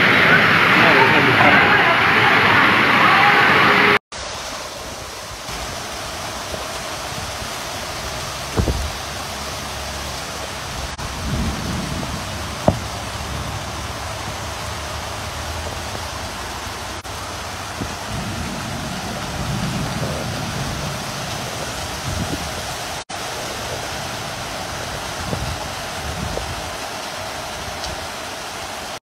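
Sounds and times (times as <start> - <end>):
heavy rain pouring: 0.0 - 29.0
wind gusts: 0.0 - 29.0.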